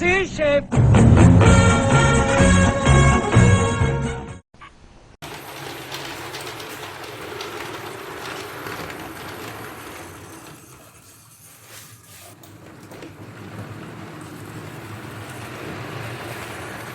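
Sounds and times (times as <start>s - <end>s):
model train running on track: 5.2s - 11.8s, 12.4s - 16.9s.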